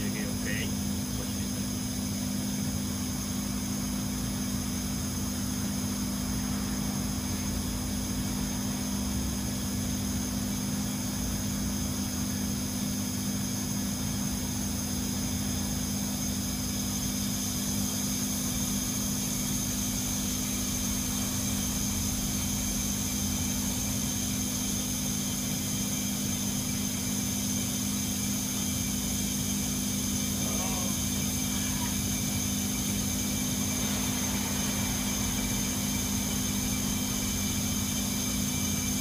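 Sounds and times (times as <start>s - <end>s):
air conditioner hum: 0.0s - 39.0s
high-pitched whine: 30.0s - 39.0s.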